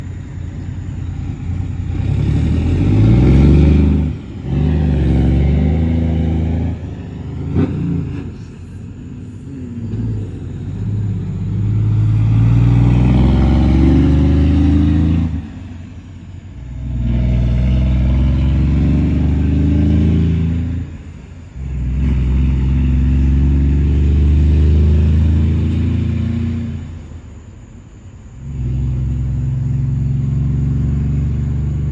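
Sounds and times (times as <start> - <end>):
engine idle rumble: 0.0 - 13.3, 15.2 - 19.4, 20.7 - 23.6, 26.8 - 31.9
diesel truck engine revving: 0.0 - 31.9.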